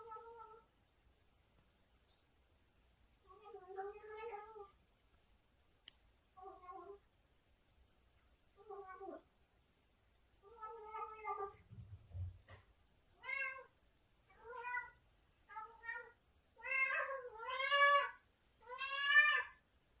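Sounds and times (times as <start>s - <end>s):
cat meowing: 6.4s - 7.0s, 10.4s - 11.6s, 13.2s - 13.7s, 14.3s - 19.6s
soft low thump: 11.7s - 12.6s.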